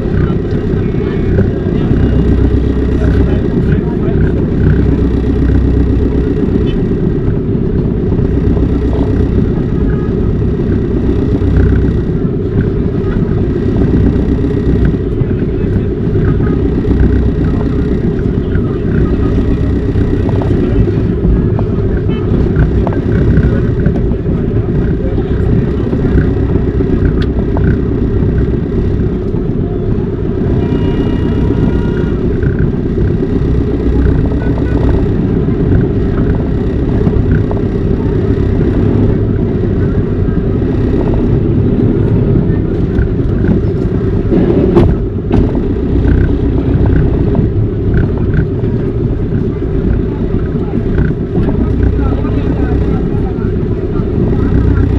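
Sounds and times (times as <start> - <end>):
vehicle low rumble: 0.0 - 54.9.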